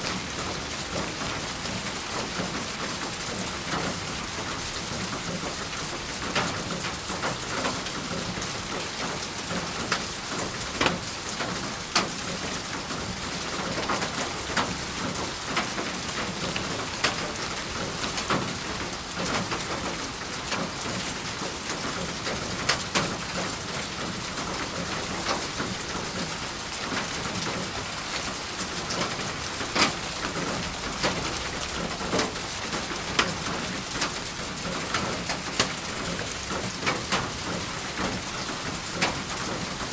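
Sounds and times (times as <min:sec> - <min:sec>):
raindrops striking a surface: 0:00.0 - 0:39.9
steady rain falling: 0:00.0 - 0:39.9.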